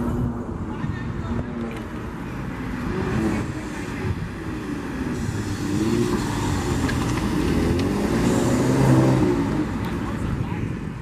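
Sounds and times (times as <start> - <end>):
car engine revving: 2.1 - 10.2.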